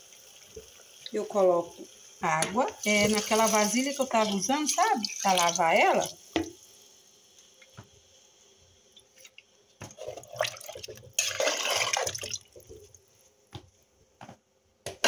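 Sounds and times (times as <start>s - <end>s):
water pouring into a bowl: 3.1s - 6.2s, 10.0s - 12.6s.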